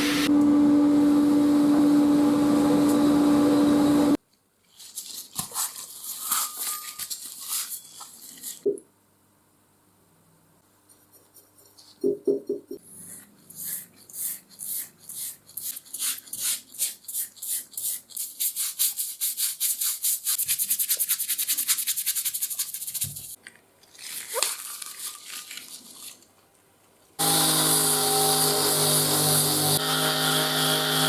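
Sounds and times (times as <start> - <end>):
power tool motor running: 27.2 - 31.0.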